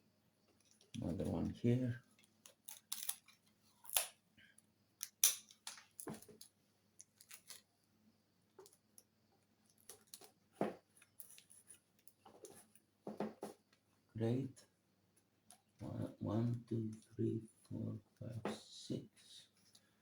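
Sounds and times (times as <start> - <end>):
tape crackling and clicking: 2.1 - 4.2.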